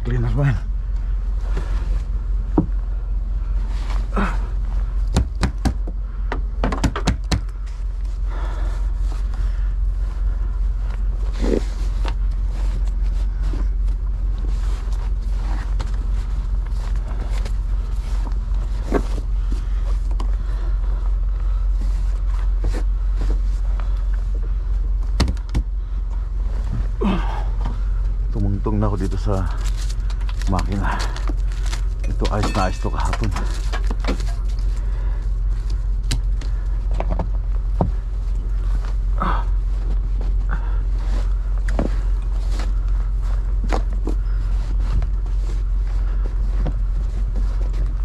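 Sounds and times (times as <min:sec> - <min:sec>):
steady low rumble: 0:00.0 - 0:48.0
knocks and thuds of snow clearing: 0:03.8 - 0:07.8, 0:32.1 - 0:35.2.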